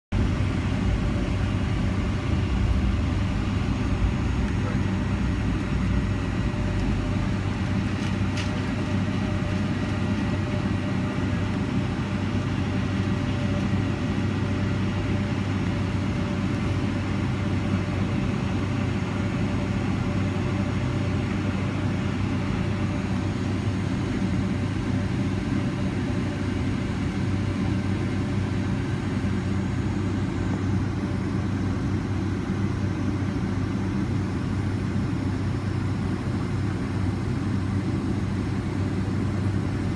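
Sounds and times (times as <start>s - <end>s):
jet engine rumble in cabin: 0.1s - 39.9s
jet engine whine: 0.1s - 39.9s.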